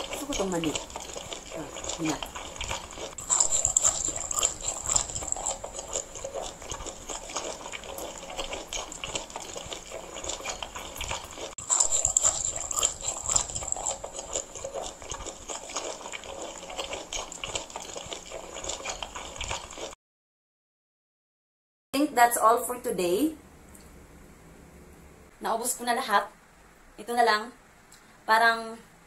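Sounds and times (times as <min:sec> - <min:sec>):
chewing crunchy snack: 0:00.0 - 0:20.0.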